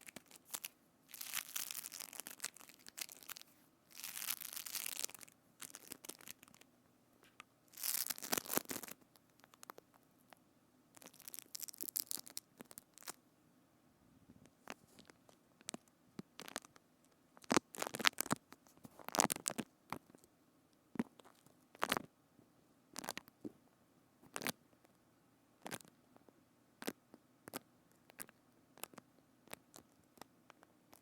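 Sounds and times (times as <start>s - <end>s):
crisp clicks and crackles: 0.0s - 10.4s, 11.0s - 13.2s, 14.4s - 20.3s, 21.0s - 22.1s, 23.0s - 23.4s, 24.2s - 25.0s, 25.6s - 31.0s.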